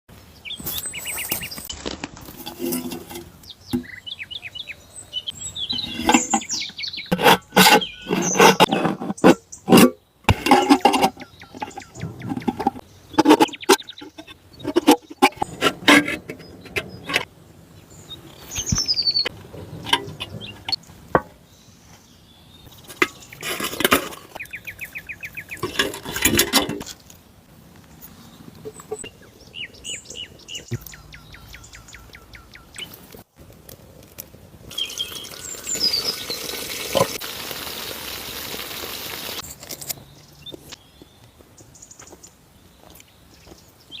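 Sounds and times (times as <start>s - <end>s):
birds chirping and calling: 2.7s - 21.0s, 22.6s - 27.0s, 28.0s - 33.0s, 34.7s - 36.7s
handling clicks and knocks: 5.7s - 17.3s, 18.6s - 21.4s.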